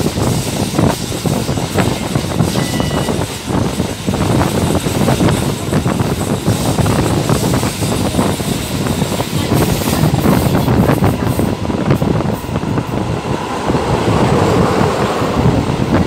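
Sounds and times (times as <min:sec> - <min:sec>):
rushing air: 0:00.0 - 0:16.0
train carriage rattling: 0:00.0 - 0:16.0
train wheels clattering over rails: 0:00.0 - 0:16.0.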